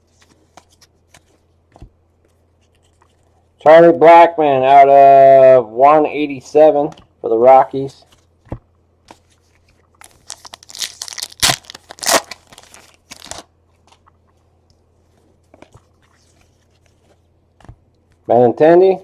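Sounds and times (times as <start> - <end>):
foil wrapper tearing and crinkling: 10.0 - 13.5.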